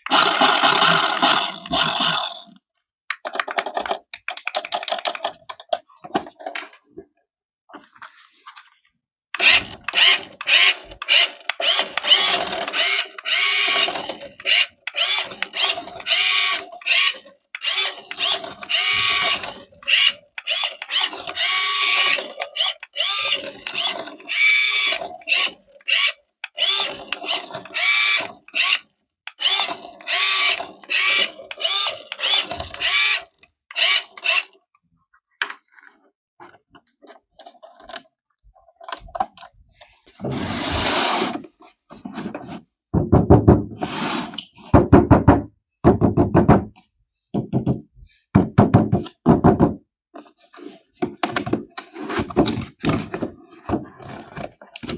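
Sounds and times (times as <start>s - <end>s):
toy car motor whirring: 0.0s - 2.5s, 9.4s - 34.6s, 40.2s - 41.6s, 43.8s - 44.6s.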